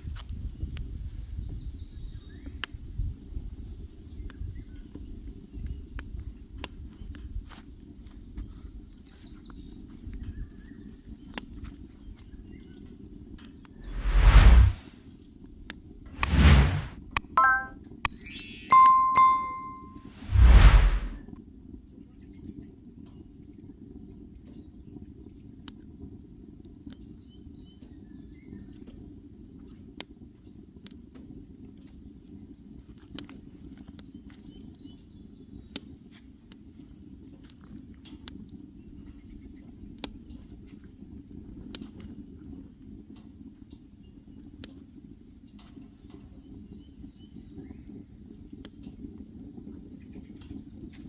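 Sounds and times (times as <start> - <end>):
low rumble: 13.8 - 14.9.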